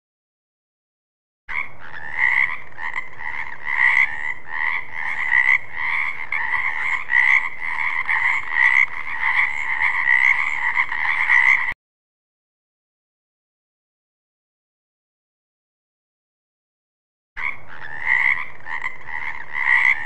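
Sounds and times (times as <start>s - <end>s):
frogs croaking: 1.5s - 11.8s, 17.4s - 20.0s.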